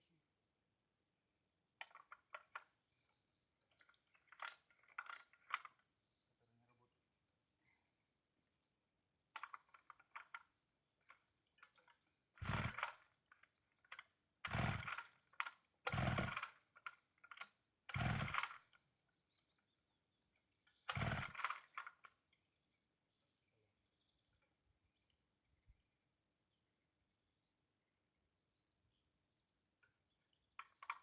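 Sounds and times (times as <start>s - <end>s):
chainsaw starter cord pulls: 3.7s - 5.8s, 9.4s - 18.8s, 20.7s - 22.3s.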